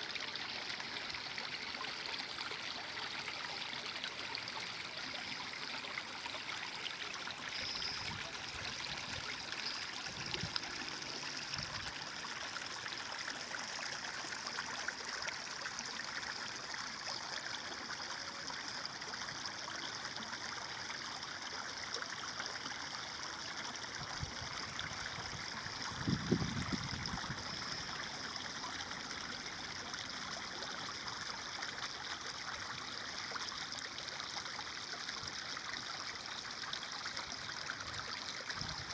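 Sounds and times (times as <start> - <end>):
stream water flowing: 0.0 - 38.9
water gurgling and plopping: 6.9 - 32.8.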